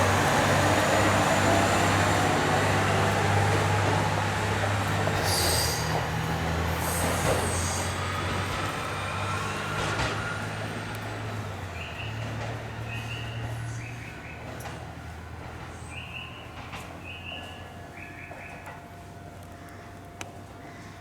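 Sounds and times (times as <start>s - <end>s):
high wheel squeals: 0.0s - 14.7s
diesel railcar engine accelerating: 0.0s - 20.8s.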